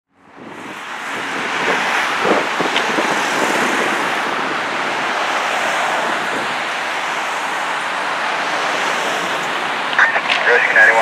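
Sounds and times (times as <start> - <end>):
road traffic rushing: 0.1 - 11.0
wind on microphone: 0.3 - 7.1.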